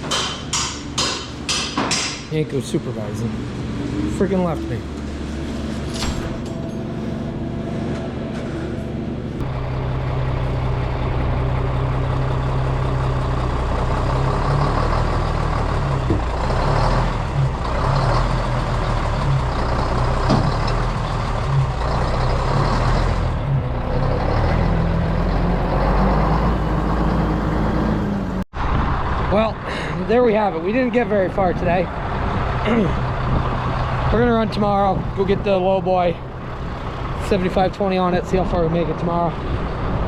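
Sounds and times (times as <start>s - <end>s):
engine running steadily: 0.0s - 24.4s, 25.0s - 40.0s.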